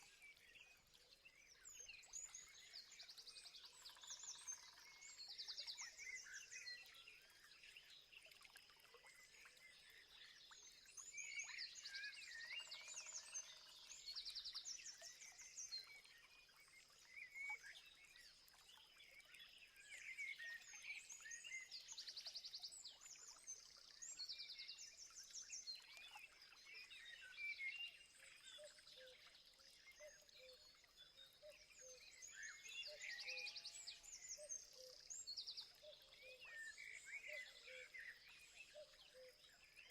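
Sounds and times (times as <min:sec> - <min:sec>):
songbird trills: 0:30.0 - 0:39.9.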